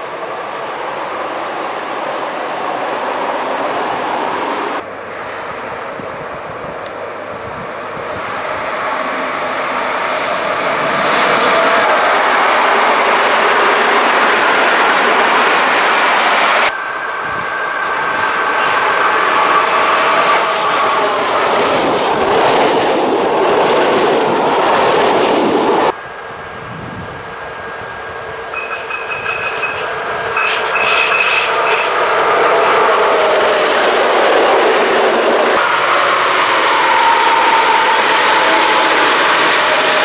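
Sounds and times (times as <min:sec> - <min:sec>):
train wheels rumbling on rail: 0:04.0 - 0:40.0
thin high squeal: 0:28.5 - 0:32.0.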